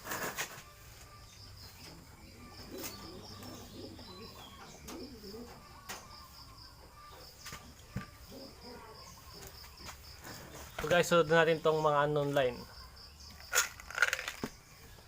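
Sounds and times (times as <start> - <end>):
insects chirping: 0.0 - 15.0
pigeons cooing: 1.7 - 6.5, 7.8 - 10.8.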